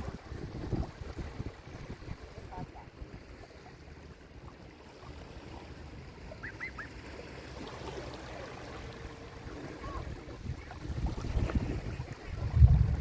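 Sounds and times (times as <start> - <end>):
sea waves washing onto shore: 0.0 - 13.0
faint short high calls: 6.4 - 7.0.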